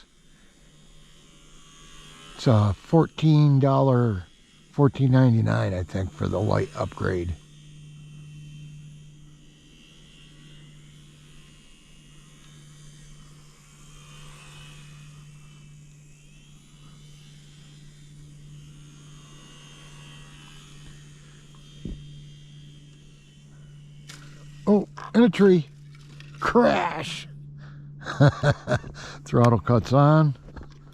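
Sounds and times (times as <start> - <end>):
electric model plane motor whine: 0.0 - 30.9
steady low hum: 0.0 - 30.9
short knock: 21.8 - 22.0.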